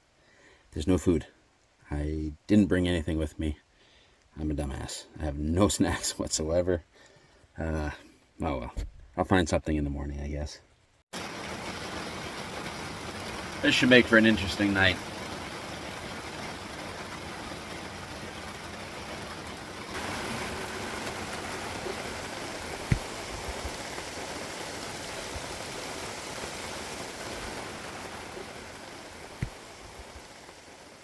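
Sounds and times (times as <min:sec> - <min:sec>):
rain falling: 0:11.1 - 0:31.0
dull knocks: 0:22.7 - 0:24.1.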